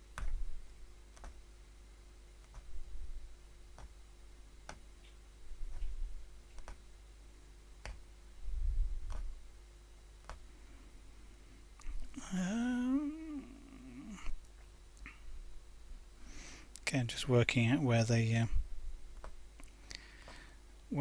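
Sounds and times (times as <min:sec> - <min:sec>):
punch needle clicking through fabric: 0:00.2 - 0:00.4, 0:01.1 - 0:01.4, 0:06.6 - 0:06.8, 0:07.8 - 0:08.0, 0:09.0 - 0:09.3, 0:10.2 - 0:10.4.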